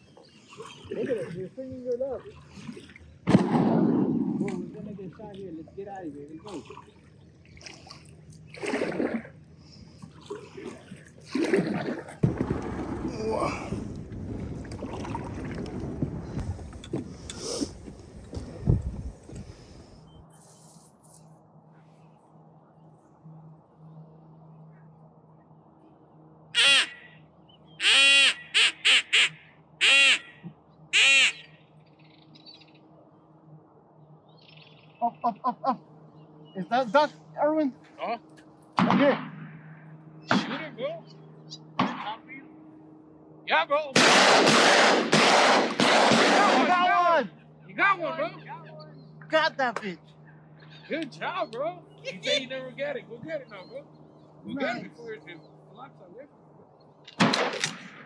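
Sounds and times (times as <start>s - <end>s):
paddle strokes splashing: 0.0s - 3.2s, 6.4s - 20.1s
duck call quacks: 26.6s - 27.2s, 27.8s - 31.5s.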